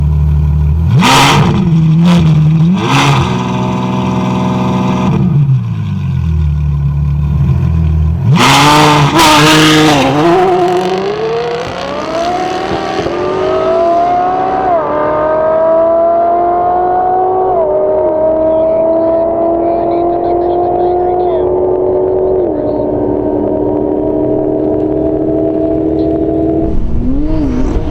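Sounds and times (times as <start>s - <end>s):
car engine idling: 0.0s - 1.0s, 5.4s - 8.4s, 17.4s - 27.9s
car engine rev blips: 0.0s - 27.9s
car accelerating away: 0.7s - 27.9s.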